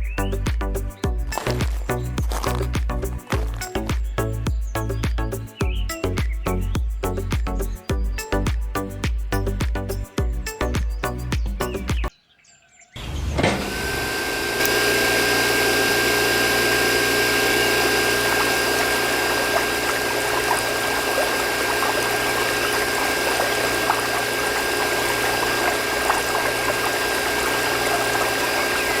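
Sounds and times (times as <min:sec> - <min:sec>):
water pump running: 0:00.1 - 0:05.5, 0:13.5 - 0:29.0
constant whine: 0:13.4 - 0:29.0
water gushing from outlet: 0:13.4 - 0:29.0.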